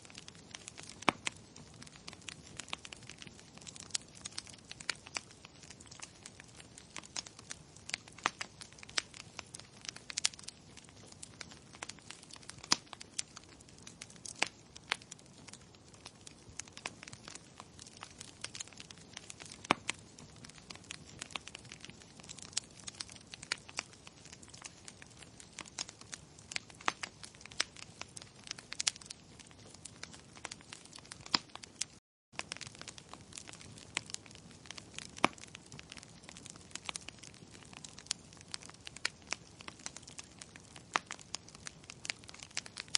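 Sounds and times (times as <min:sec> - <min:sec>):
fire crackling in fireplace: 0:00.0 - 0:42.9.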